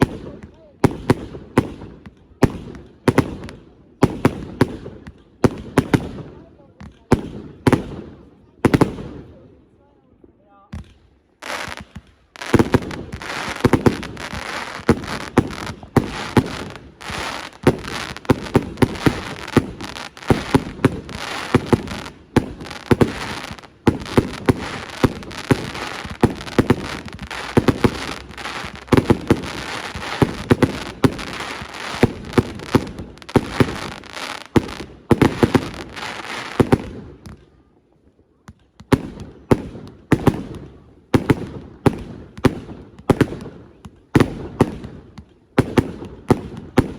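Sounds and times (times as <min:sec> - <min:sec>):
fireworks bangs: 0:00.0 - 0:09.5, 0:10.7 - 0:37.5, 0:38.5 - 0:46.9
fireworks crackle: 0:10.8 - 0:37.5.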